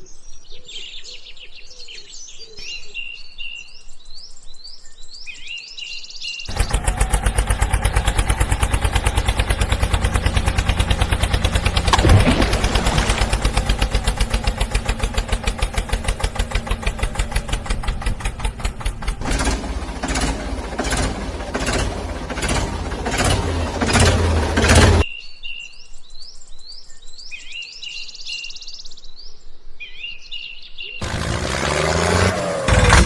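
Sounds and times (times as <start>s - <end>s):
engine running: 6.5s - 25.0s, 31.0s - 33.0s
rough running engine: 6.5s - 25.0s, 31.0s - 33.0s.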